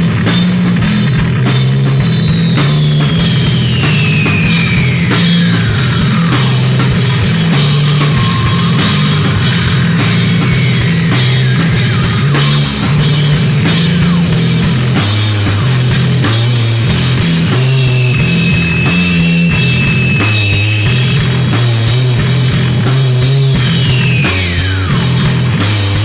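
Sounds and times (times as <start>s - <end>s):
loud rock music: 0.0s - 26.0s
high note gliding downward: 1.9s - 13.2s.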